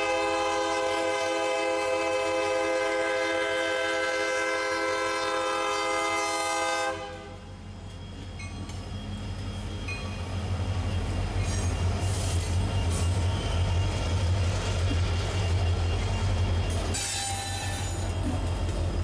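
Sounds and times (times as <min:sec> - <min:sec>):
locomotive air horn: 0:00.0 - 0:07.5, 0:16.9 - 0:18.0
low locomotive rumble: 0:00.0 - 0:19.0.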